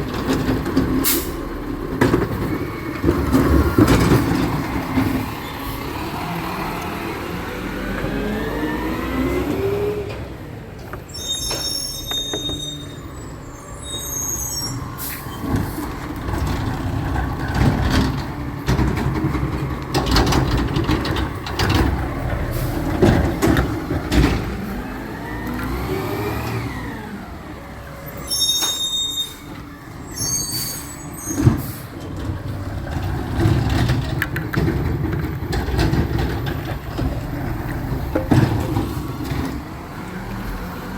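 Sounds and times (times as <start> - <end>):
truck engine and hydraulics: 0.0 - 40.9
recyclables clattering into hopper: 15.4 - 24.9, 31.4 - 39.8.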